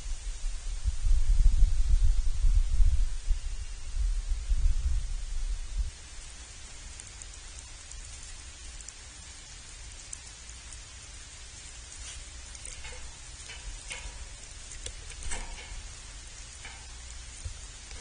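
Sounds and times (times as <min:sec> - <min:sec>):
steady hiss: 0:00.0 - 0:18.0
small clicks: 0:12.0 - 0:15.9.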